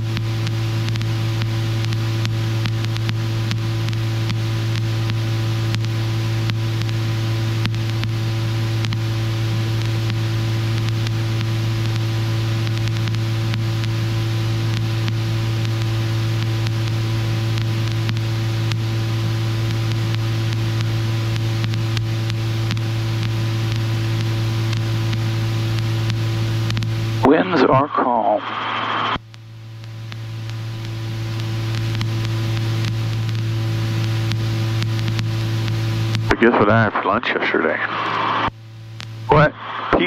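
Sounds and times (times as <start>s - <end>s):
helicopter engine and rotor drone: 0.1s - 29.6s.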